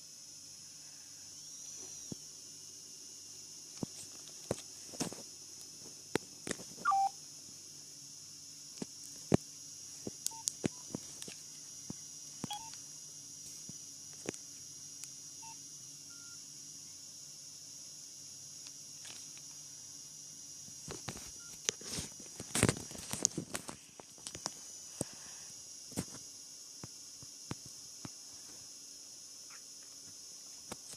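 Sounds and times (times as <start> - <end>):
faint hiss: 0.0 - 30.9
key beeps: 6.8 - 7.1.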